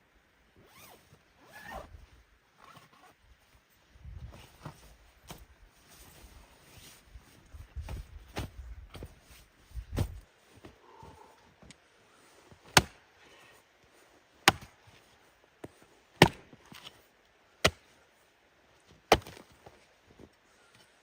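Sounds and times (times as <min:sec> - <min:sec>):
axe chopping wood: 0:12.7 - 0:13.0, 0:14.4 - 0:14.7, 0:16.2 - 0:16.5, 0:17.6 - 0:17.8, 0:19.1 - 0:19.4.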